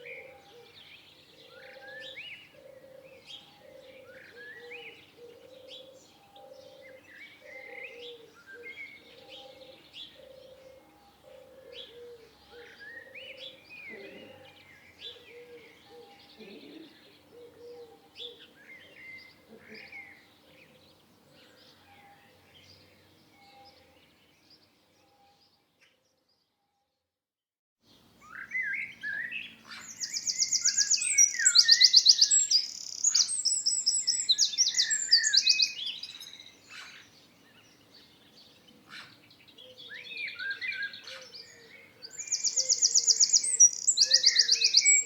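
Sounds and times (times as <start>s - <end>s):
songbirds chirping: 0.0s - 26.6s, 27.8s - 45.0s
low repeating bird call: 42.1s - 45.0s.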